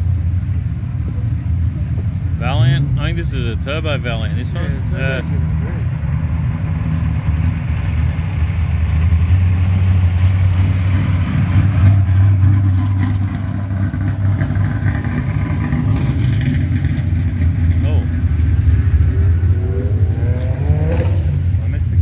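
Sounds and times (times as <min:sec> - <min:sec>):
car engine rumbling passing by: 0:00.0 - 0:22.0.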